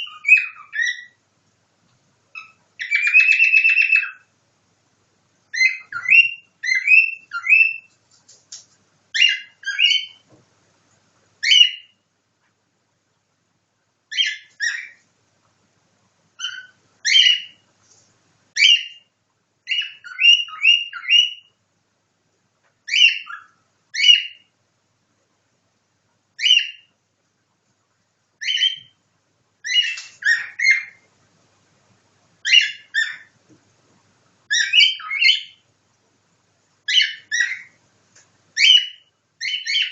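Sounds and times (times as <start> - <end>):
bird whistling and chirping: 0.0 - 1.2, 2.4 - 4.3, 5.5 - 7.9, 9.2 - 10.2, 11.4 - 12.0, 14.1 - 15.0, 16.4 - 17.6, 18.6 - 19.1, 19.7 - 21.6, 22.9 - 24.5, 26.4 - 26.9, 28.4 - 29.0, 29.6 - 31.0, 32.4 - 33.3, 34.5 - 35.6, 36.9 - 37.8, 38.6 - 39.9.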